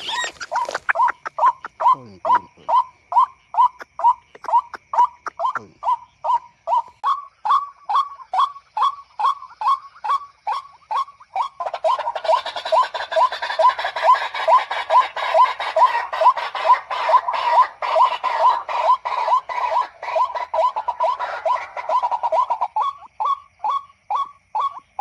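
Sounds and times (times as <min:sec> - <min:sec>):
waterhen calls: 0:00.0 - 0:25.0.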